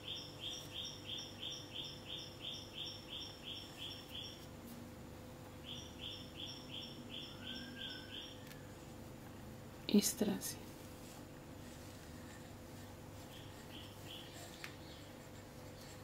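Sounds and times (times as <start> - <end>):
rapid bird chirps: 0.0 - 4.5, 5.6 - 8.8, 13.3 - 15.2
faint steady hum: 0.0 - 16.0.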